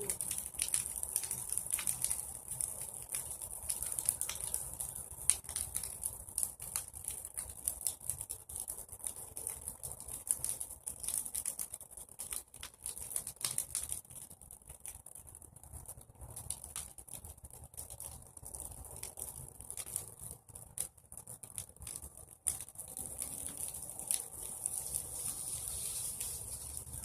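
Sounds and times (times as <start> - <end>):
bonfire crackling and popping: 0.0 - 27.0
steady high hiss: 24.5 - 27.0.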